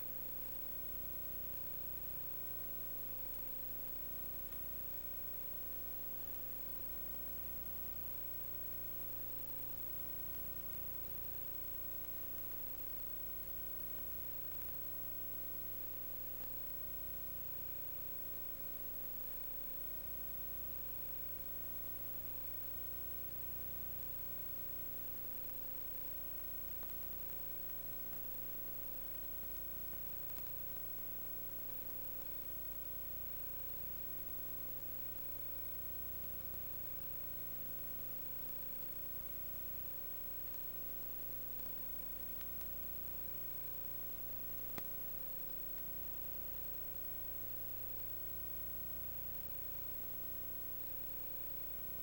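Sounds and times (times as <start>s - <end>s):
faint clicks: 0.0s - 48.4s
constant mid-pitched tone: 0.0s - 52.0s
electrical hum: 0.0s - 52.0s
steady hiss: 0.0s - 52.0s.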